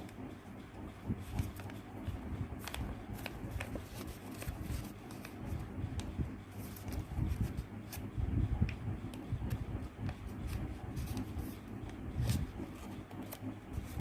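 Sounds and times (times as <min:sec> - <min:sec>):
paper being folded and creased: 0:01.0 - 0:14.0.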